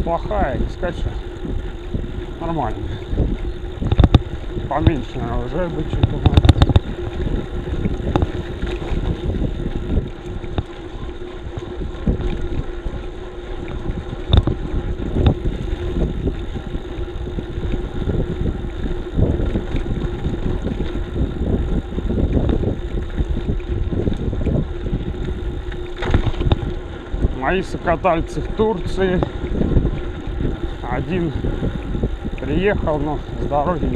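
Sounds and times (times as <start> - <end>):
rumbling road noise: 0.0 - 33.9
wind buffeting microphone: 0.0 - 33.9.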